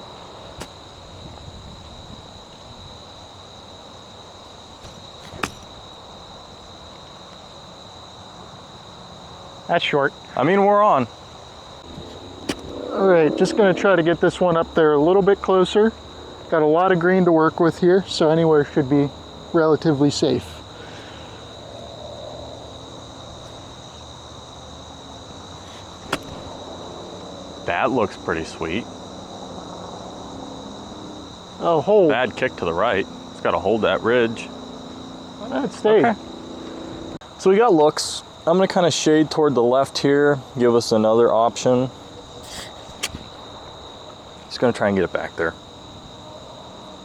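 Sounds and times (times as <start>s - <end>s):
insects chirring: 0.0s - 47.0s
golf club hitting ball: 4.8s - 6.7s, 11.8s - 13.6s, 25.7s - 27.2s, 42.5s - 43.6s.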